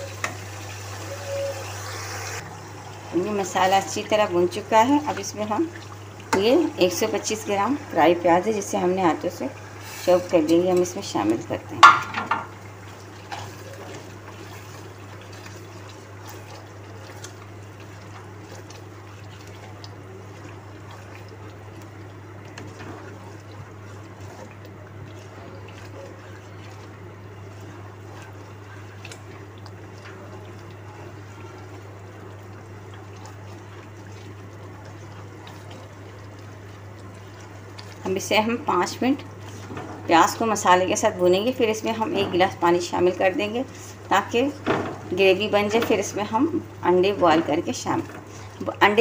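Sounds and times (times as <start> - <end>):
food sizzling in hot oil: 0.0 - 7.0.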